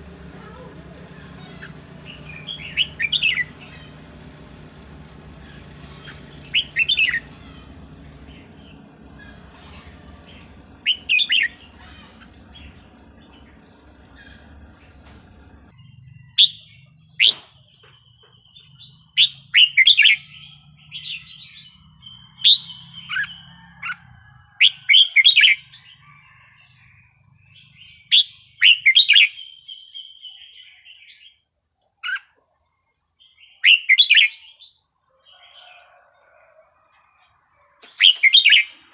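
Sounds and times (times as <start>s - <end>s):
bird warbling: 5.4s - 16.6s.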